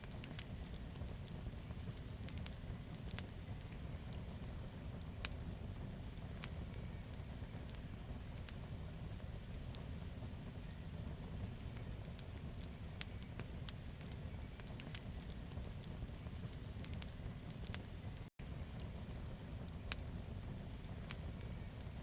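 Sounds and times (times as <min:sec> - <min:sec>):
low rumble of flames: 0:00.0 - 0:22.0
wood crackling and popping: 0:00.0 - 0:22.0.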